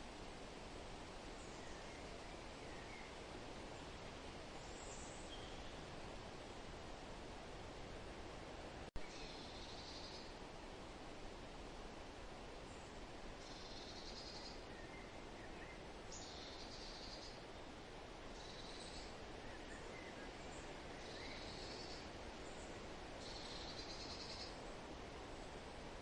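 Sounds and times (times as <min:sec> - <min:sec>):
wind through forest: 0:00.0 - 0:26.0
faint bird chirps: 0:04.6 - 0:05.9, 0:09.0 - 0:10.4, 0:12.7 - 0:17.4, 0:18.4 - 0:24.7.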